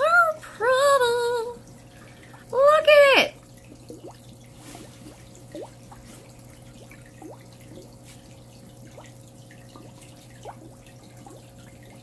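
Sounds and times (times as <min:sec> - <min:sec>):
low steady hum: 0:00.0 - 0:12.0
water drops plinking in pond: 0:03.4 - 0:04.4, 0:05.3 - 0:06.0, 0:06.6 - 0:12.0.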